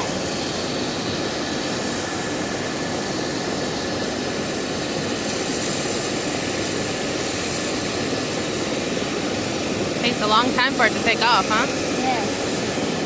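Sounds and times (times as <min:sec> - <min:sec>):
helicopter turbine and rotors: 0:00.0 - 0:13.0.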